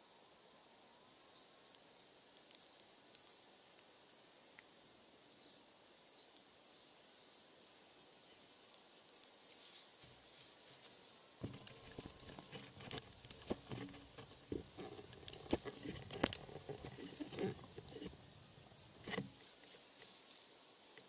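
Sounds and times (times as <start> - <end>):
wood fire crackling: 11.4 - 20.4.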